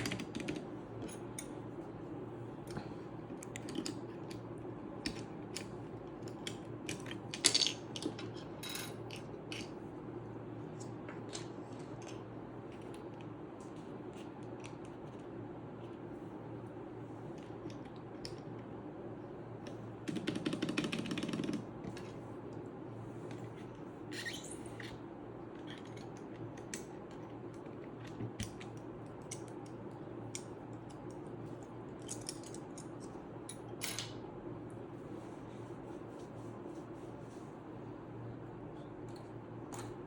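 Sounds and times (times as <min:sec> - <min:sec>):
keycaps clicking and tapping: 0:00.0 - 0:00.7, 0:20.0 - 0:21.7
steady low hum: 0:00.0 - 0:21.0.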